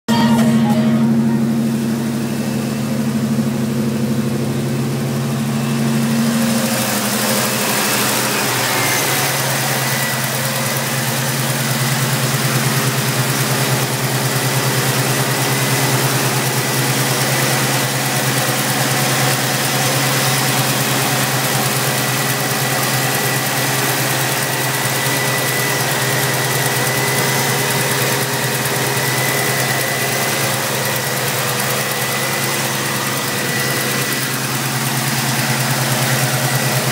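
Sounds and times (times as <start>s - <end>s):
car engine idling: 0.0s - 36.9s
thin high whine: 0.1s - 3.3s.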